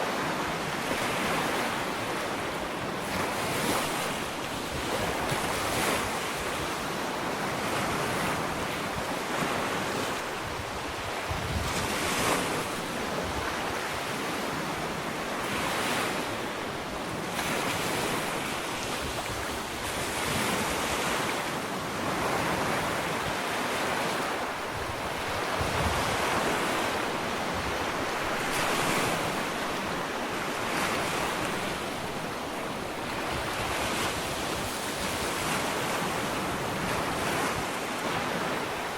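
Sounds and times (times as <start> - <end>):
ocean waves on sandy beach: 0.0 - 38.9.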